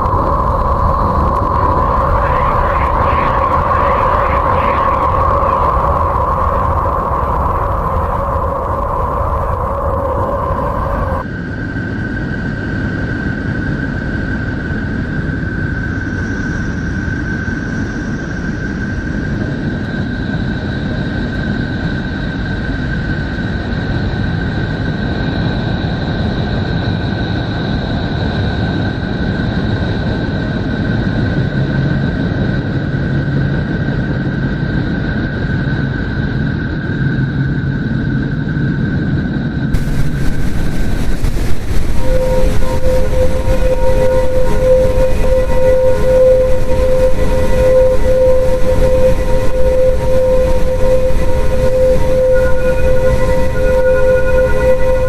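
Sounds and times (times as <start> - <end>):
thin high whine: 0.0 - 11.5, 39.7 - 55.0
rumbling noise drone: 0.0 - 55.0
faint high tone: 39.8 - 55.0.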